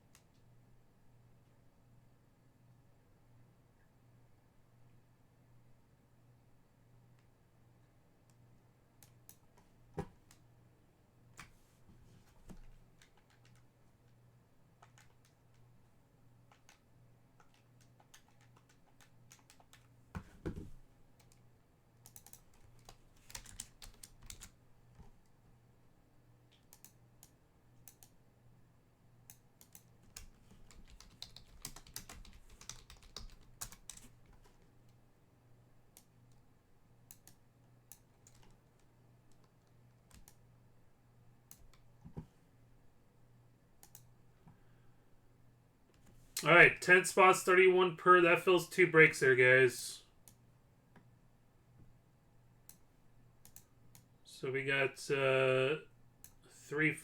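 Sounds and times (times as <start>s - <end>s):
faint steady hum: 0.0s - 57.0s
typing on keyboard: 12.5s - 13.8s, 14.8s - 15.7s, 16.4s - 19.9s, 22.0s - 24.6s, 29.3s - 34.6s, 37.1s - 40.4s.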